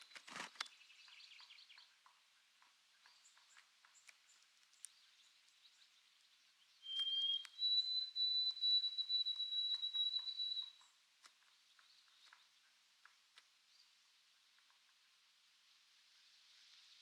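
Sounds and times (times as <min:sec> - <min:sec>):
faint bird chirps and ticks: 0:00.0 - 0:17.0
sparrow whistled song: 0:06.6 - 0:11.0.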